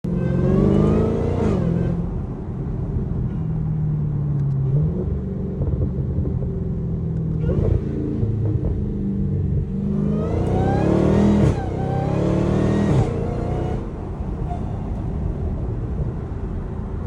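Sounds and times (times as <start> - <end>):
car engine under load: 0.0 - 17.0.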